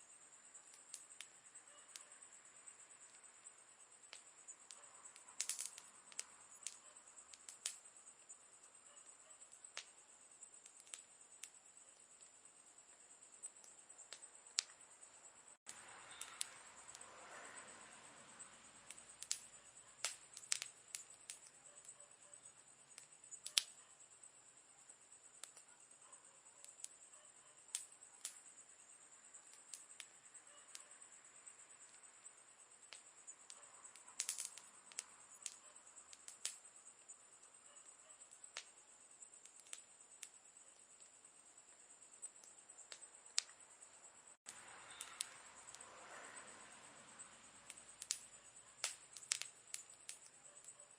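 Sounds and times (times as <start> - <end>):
steady high hiss: 0.0 - 25.7
campfire crackling: 0.0 - 50.9.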